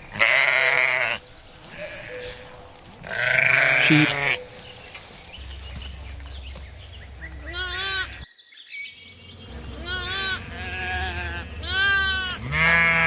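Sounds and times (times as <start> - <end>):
sheep bleating: 3.3 - 4.2.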